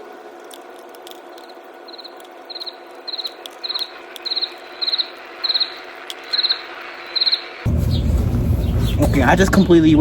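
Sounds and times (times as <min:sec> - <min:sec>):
cricket chirping: 0:01.1 - 0:08.1.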